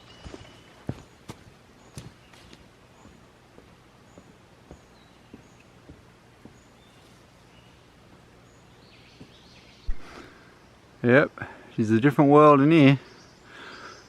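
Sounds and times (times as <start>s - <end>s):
faint footsteps walking: 0.0s - 8.3s, 9.1s - 10.2s.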